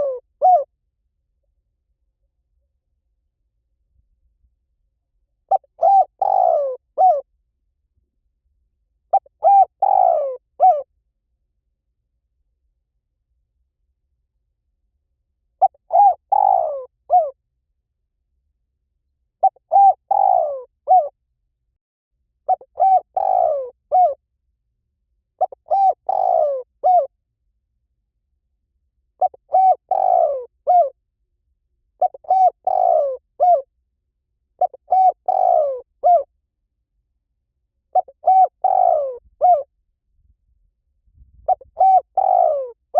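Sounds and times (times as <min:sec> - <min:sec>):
dove cooing: 0:00.0 - 0:00.7, 0:05.5 - 0:07.2, 0:09.1 - 0:10.9, 0:15.6 - 0:17.4, 0:19.4 - 0:21.1, 0:22.5 - 0:24.2, 0:25.4 - 0:27.1, 0:29.2 - 0:31.0, 0:32.0 - 0:33.7, 0:34.6 - 0:36.3, 0:37.9 - 0:39.7, 0:41.4 - 0:42.9.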